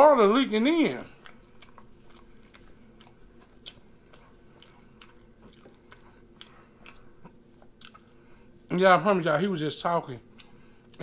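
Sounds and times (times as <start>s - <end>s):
low room hum: 0.0s - 11.0s
faint chewing: 0.7s - 8.6s, 10.2s - 11.0s
soft mouth clicks: 10.3s - 11.0s.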